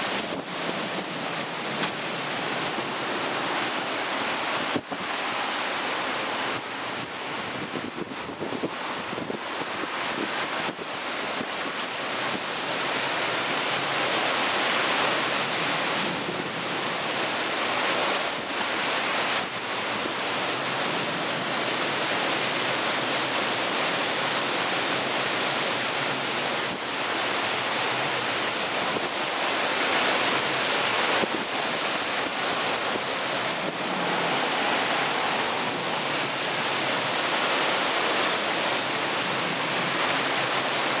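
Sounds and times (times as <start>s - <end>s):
wind gusting: 28.6s - 41.0s.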